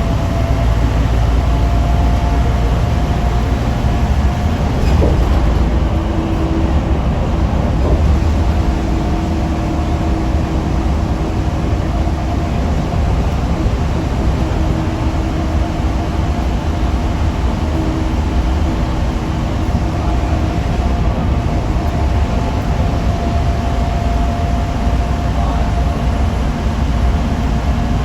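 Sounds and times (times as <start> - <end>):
bus engine and road rumble: 0.0 - 28.0.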